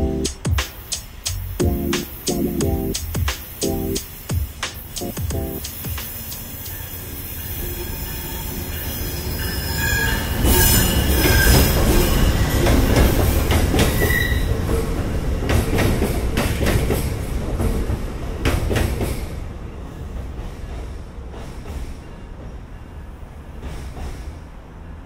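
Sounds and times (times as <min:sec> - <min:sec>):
train wheels squealing: 0:06.1 - 0:14.6
train cars clicking over rails: 0:10.4 - 0:19.3, 0:23.6 - 0:24.5.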